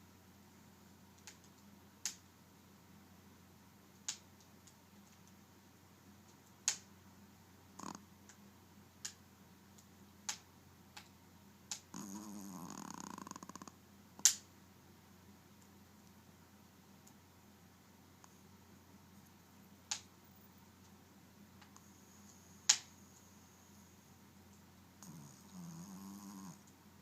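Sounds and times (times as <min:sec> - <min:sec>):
dog snoring with clicks: 0:07.7 - 0:08.4, 0:11.7 - 0:14.4, 0:25.0 - 0:26.8
dog snorting: 0:07.8 - 0:08.0, 0:11.9 - 0:13.7, 0:25.0 - 0:26.6.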